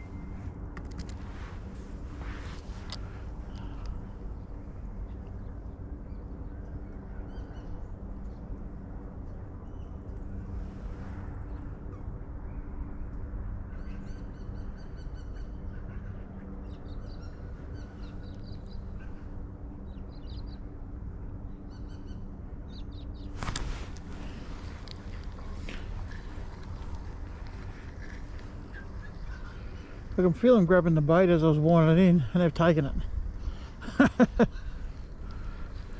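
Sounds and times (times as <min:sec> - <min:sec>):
low outdoor hum: 0:00.0 - 0:35.9
small birds chirping: 0:13.8 - 0:20.6, 0:21.6 - 0:35.9.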